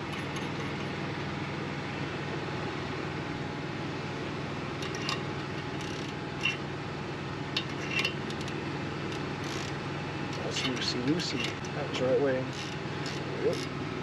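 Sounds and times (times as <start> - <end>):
engine hum: 0.0 - 14.0.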